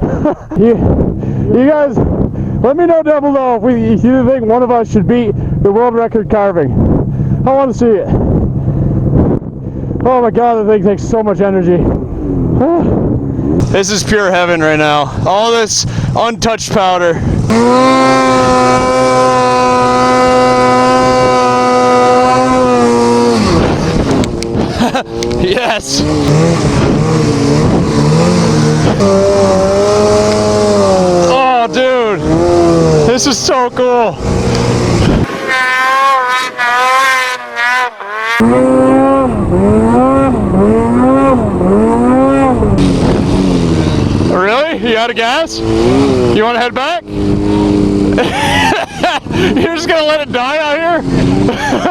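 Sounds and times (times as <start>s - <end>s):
snowmobile engine at high revs: 12.1s - 51.9s.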